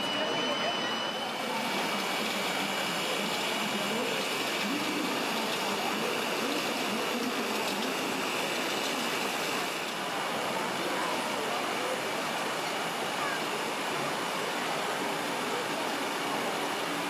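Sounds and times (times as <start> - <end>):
thin steady high tone: 0.0 - 9.8
crowd hiss: 0.0 - 17.0
faint distant voices: 0.0 - 17.0.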